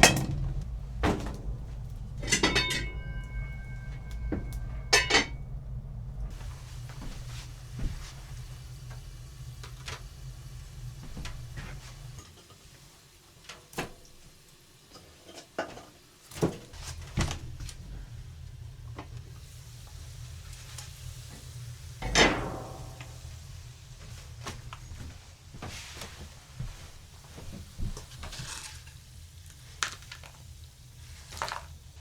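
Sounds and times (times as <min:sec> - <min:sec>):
light knocks and clinks: 0:00.0 - 0:05.4
low steady rumble: 0:00.0 - 0:12.3, 0:16.7 - 0:32.0.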